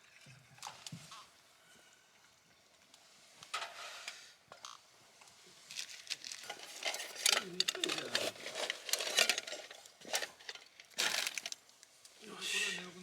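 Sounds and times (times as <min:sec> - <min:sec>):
metal utensils clinking on cookware: 0:06.5 - 0:11.3.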